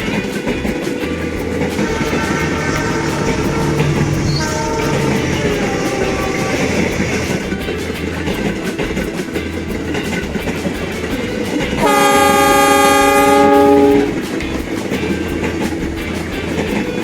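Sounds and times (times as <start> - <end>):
miniature train clattering: 0.0 - 17.0
train horn: 11.8 - 14.2.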